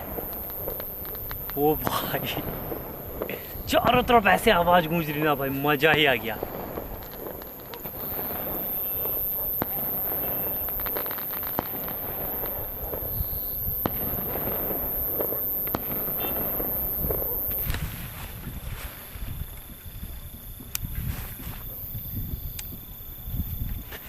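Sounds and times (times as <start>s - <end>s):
distant firecracker bangs: 0.0s - 18.1s
firecracker crackling: 0.0s - 24.0s.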